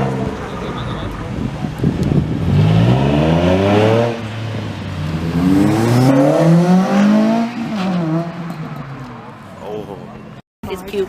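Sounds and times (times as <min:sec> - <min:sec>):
car engine revving hard: 0:00.0 - 0:08.4.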